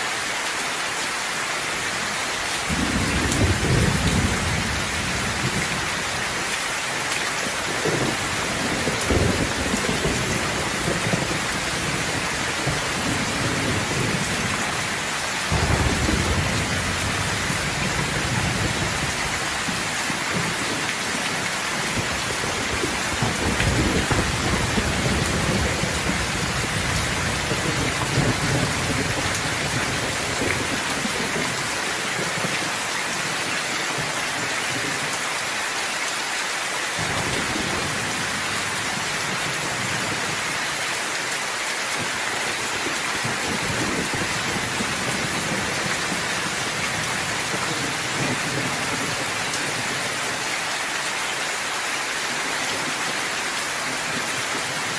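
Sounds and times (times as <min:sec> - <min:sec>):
heavy rain hissing: 0:00.0 - 0:54.9
rolling thunder rumbling: 0:02.7 - 0:06.4, 0:07.5 - 0:32.6, 0:37.0 - 0:40.3.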